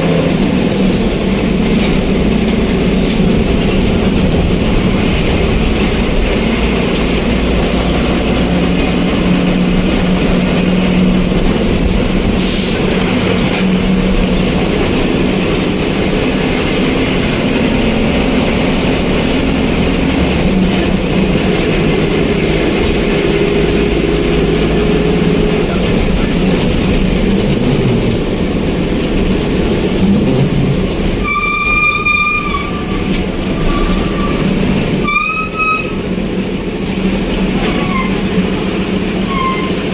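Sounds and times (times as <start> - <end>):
vehicle running rumble: 0.0 - 39.9
vehicle horn: 31.2 - 36.0.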